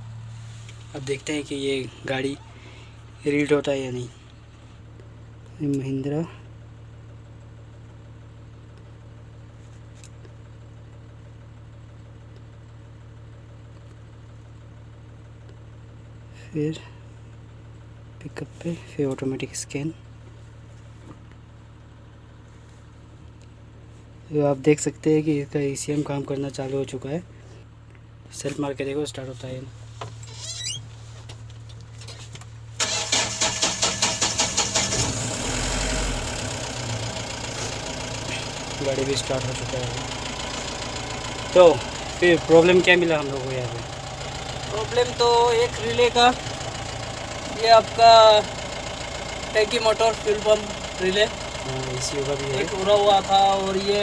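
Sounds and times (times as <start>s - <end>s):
diesel engine idling: 0.0s - 54.0s
low mechanical hum: 0.0s - 54.0s
starter motor cranking engine: 32.8s - 54.0s.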